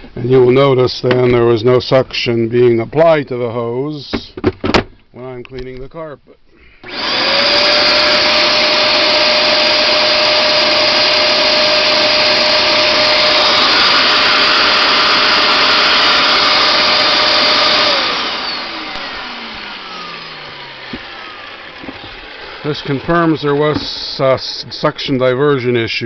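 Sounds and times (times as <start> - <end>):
carpet cleaner suction motor whining: 6.8 - 24.9.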